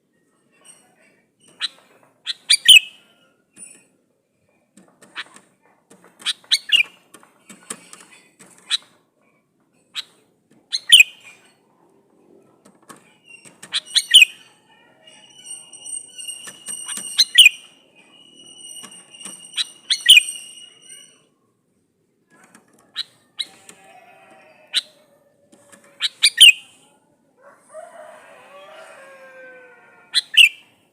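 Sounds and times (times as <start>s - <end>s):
bulbul chirping calls: 10.7s - 11.3s, 26.0s - 26.8s.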